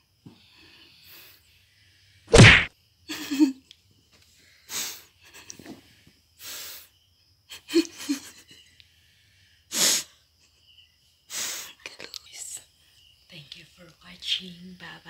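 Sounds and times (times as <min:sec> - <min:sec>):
stifled laughter: 0:07.5 - 0:08.7.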